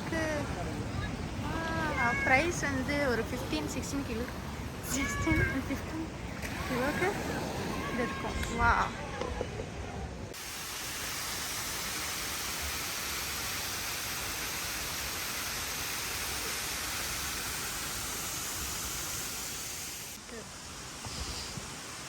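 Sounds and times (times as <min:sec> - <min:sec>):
waterfall rushing: 0:10.4 - 0:22.0.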